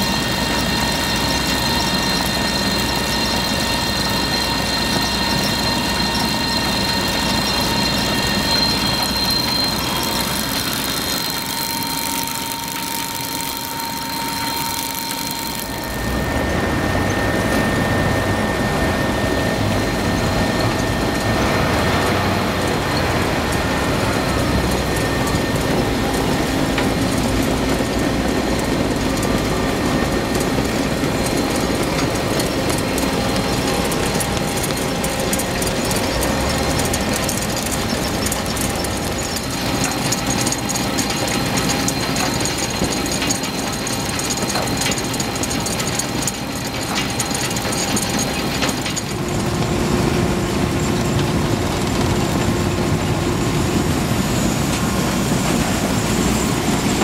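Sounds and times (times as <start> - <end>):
harvester chains rattling: 0.0 - 16.0, 24.3 - 49.4
tractor engine running: 0.0 - 57.0.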